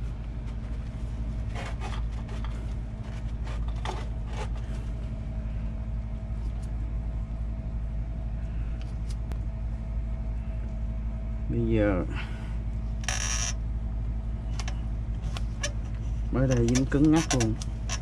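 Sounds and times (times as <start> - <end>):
low mechanical hum: 0.0 - 18.0
pipe clicking and rubbing in fitting: 0.4 - 4.8, 14.6 - 18.0.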